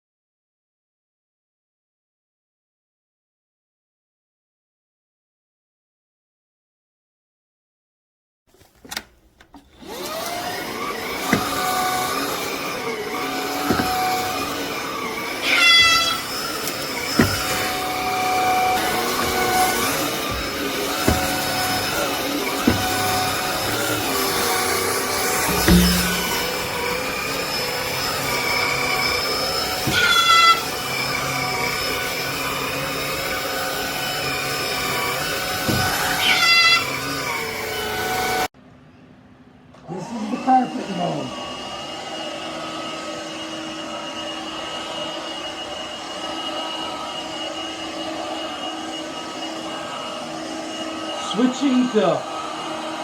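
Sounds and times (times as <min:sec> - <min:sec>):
stick vacuum running: 0:08.9 - 0:38.5, 0:39.8 - 0:53.0
knocks: 0:11.2 - 0:11.8, 0:13.6 - 0:14.2, 0:17.2 - 0:17.8, 0:19.6 - 0:21.6, 0:22.6 - 0:23.8, 0:25.4 - 0:27.0
cat meowing: 0:15.4 - 0:16.3, 0:29.9 - 0:30.7, 0:36.1 - 0:36.9
rising whine: 0:19.2 - 0:29.6.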